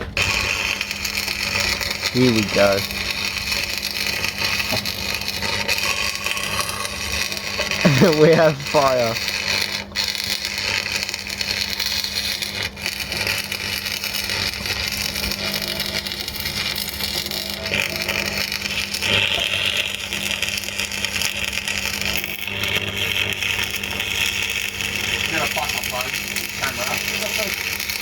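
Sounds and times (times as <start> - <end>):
welding arc crackling: 0.0 - 28.0
low electrical hum: 1.4 - 18.4.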